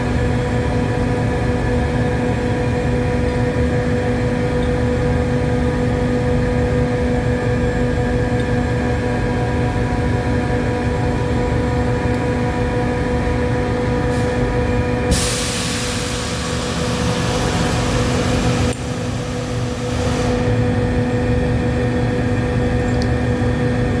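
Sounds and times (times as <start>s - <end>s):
hiss of flow through valve: 15.1s - 20.6s.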